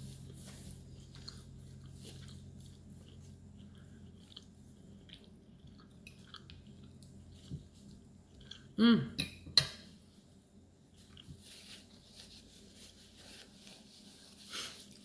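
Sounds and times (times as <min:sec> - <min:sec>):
faint steady hum: 0:00.0 - 0:15.0
person chewing food: 0:00.1 - 0:08.8, 0:10.9 - 0:12.0.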